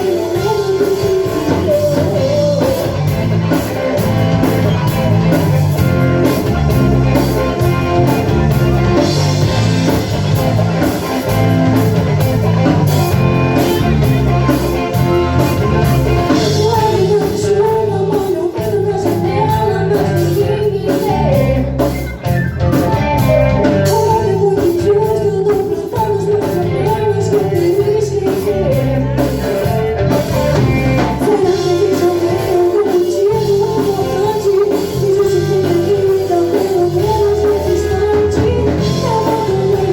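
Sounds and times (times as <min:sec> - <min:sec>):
rock band playing live: 0:00.0 - 0:39.9
wavering lead melody: 0:00.0 - 0:39.9.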